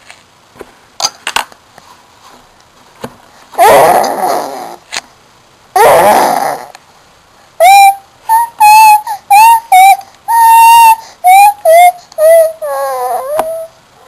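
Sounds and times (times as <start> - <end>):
baby growling: 3.6 - 4.9, 5.8 - 6.8, 7.6 - 13.7
baby squealing high notes: 7.6 - 13.8.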